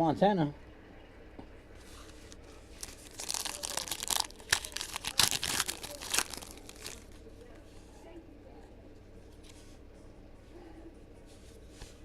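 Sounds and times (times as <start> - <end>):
foil wrapper crinkling and tearing: 2.1 - 7.2.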